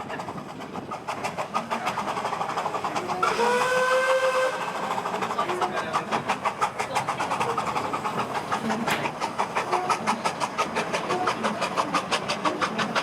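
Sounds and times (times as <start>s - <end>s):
steam locomotive exhaust beating: 0.0s - 13.0s
steam whistle: 3.2s - 4.9s.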